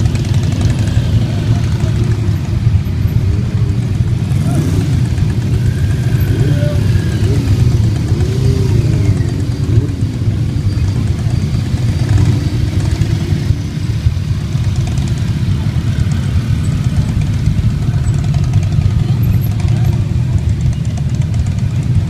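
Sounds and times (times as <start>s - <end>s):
motorcycle engines rumbling: 0.0s - 22.0s.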